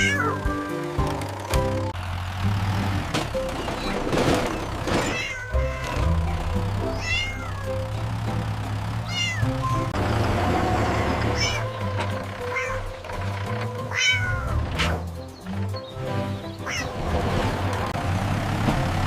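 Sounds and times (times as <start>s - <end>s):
cat meowing: 0.0s - 0.6s, 5.0s - 6.0s, 7.0s - 7.8s, 9.0s - 9.9s, 11.3s - 11.8s, 12.4s - 13.0s, 13.9s - 14.6s, 16.6s - 17.0s
background music: 0.0s - 4.2s, 4.8s - 19.0s.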